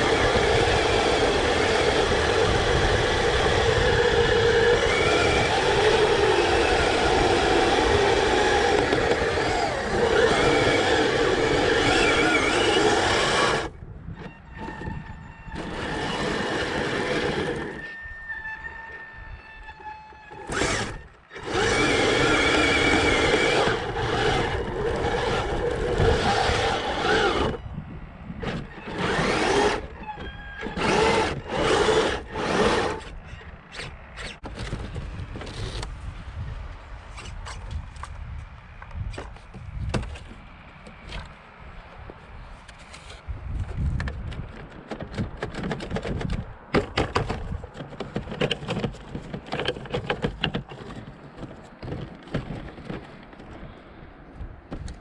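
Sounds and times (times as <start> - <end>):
toy tracked vehicle motor whine: 0.0 - 27.7, 28.4 - 34.8.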